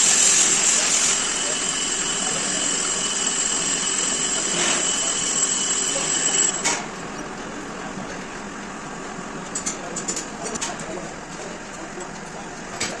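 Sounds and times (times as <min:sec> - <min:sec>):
power tool whining: 0:00.0 - 0:06.6.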